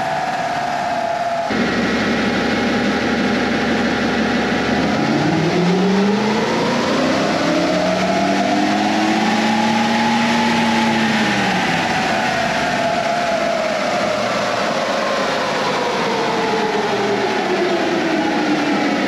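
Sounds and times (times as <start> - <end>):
car engine revving under load: 0.0 - 15.5.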